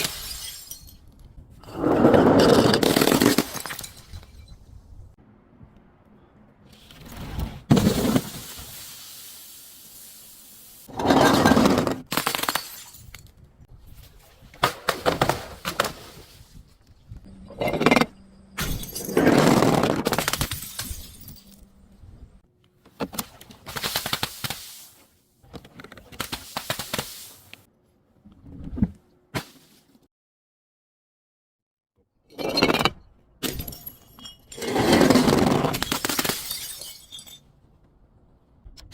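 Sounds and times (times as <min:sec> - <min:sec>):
glass bottles smashing: 0:00.0 - 0:01.1, 0:02.8 - 0:04.6, 0:10.7 - 0:13.3, 0:17.6 - 0:21.7, 0:33.4 - 0:37.5.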